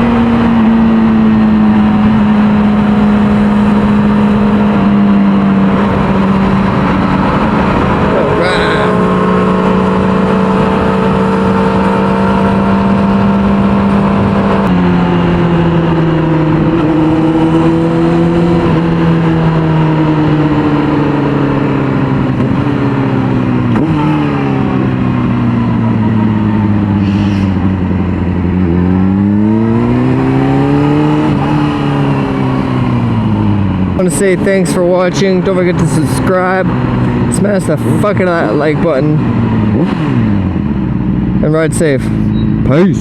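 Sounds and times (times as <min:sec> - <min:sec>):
motorcycle engine: 0:00.0 - 0:43.0
wind rushing: 0:25.8 - 0:28.5.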